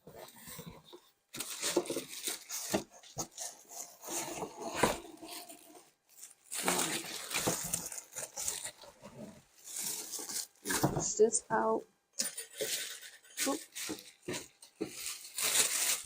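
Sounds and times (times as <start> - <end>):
packaging rustling and scraping: 0.0 - 16.0.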